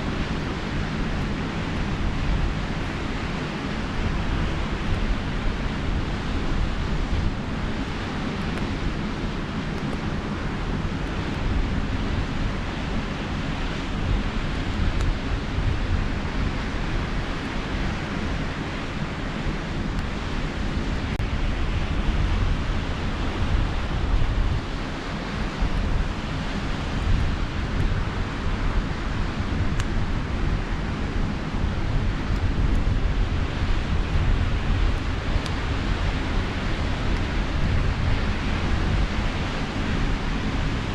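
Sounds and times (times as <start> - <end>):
campfire crackles: 0.0 - 40.9
sea surf: 0.0 - 40.9
wind rumbling on microphone: 0.0 - 40.9.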